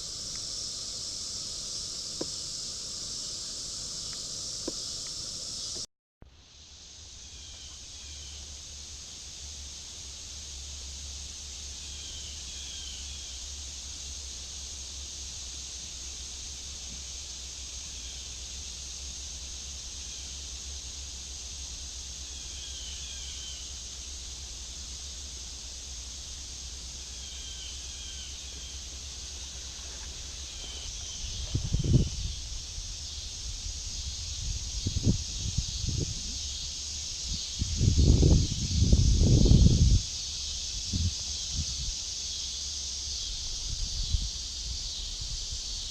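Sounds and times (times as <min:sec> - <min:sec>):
insect drone: 0:00.0 - 0:45.9.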